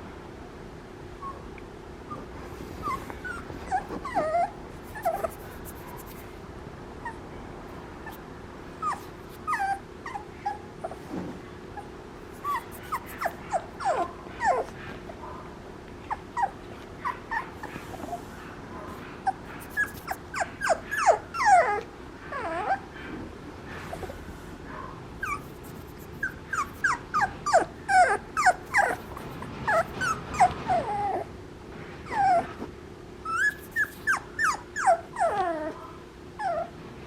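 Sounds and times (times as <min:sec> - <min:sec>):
faint steady hum: 0:00.0 - 0:37.0
puppy whimpering: 0:01.2 - 0:06.2, 0:07.0 - 0:07.2, 0:08.0 - 0:08.2, 0:08.8 - 0:11.1, 0:11.8 - 0:15.0, 0:16.0 - 0:18.2, 0:19.2 - 0:23.0, 0:25.2 - 0:31.3, 0:32.0 - 0:36.8.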